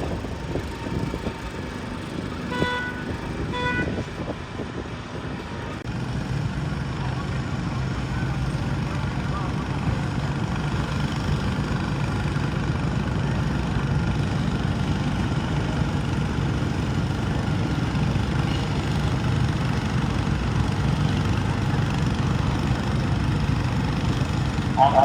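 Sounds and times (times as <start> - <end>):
garden tractor engine running: 5.3 - 25.0.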